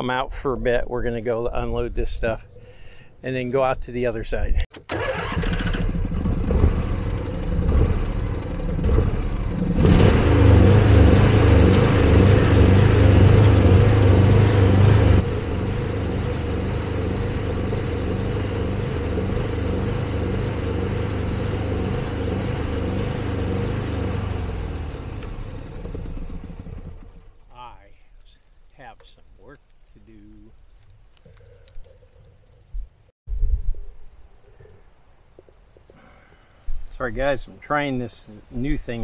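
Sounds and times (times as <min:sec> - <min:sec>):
vehicle engine running: 0:05.6 - 0:28.0.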